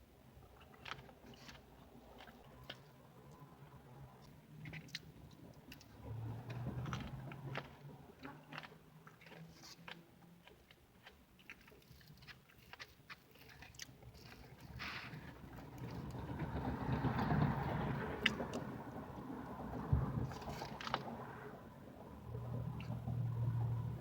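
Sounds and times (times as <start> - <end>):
person chewing food: 0.4 - 16.2, 20.2 - 21.2.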